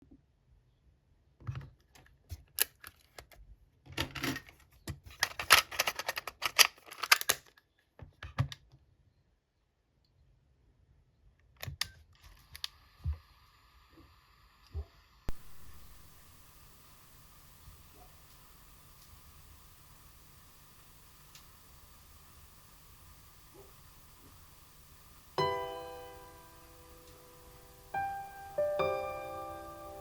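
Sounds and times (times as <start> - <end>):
plastic clicks and rattles: 1.4 - 8.7
faint steady whine: 12.4 - 30.0.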